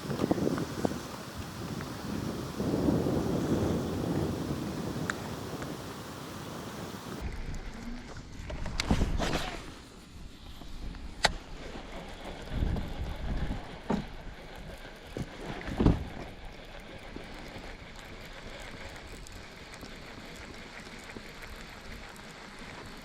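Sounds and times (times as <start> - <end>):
wind hiss: 0.0 - 7.6.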